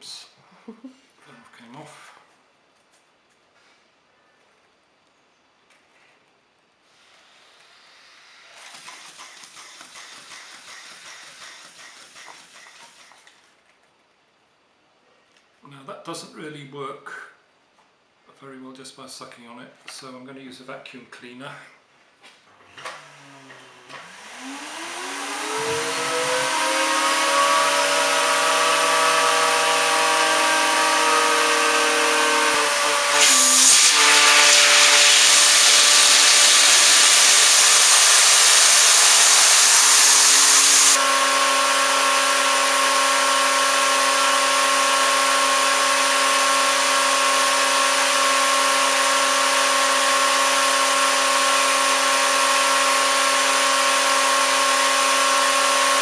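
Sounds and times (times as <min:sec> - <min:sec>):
vacuum cleaner motor whining: 0:23.1 - 0:56.0.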